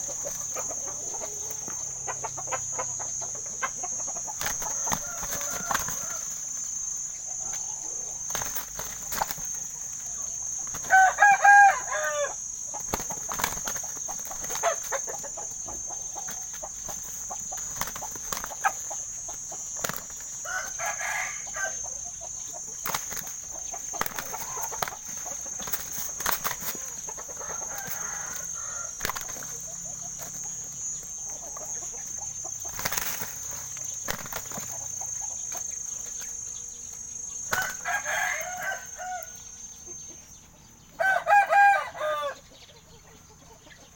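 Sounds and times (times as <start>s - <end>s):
roosters crowing: 0.0s - 40.0s, 40.8s - 42.6s
chickens clucking: 0.0s - 43.9s
wings flapping and scuffling: 4.2s - 6.7s, 7.6s - 11.9s, 12.7s - 39.3s.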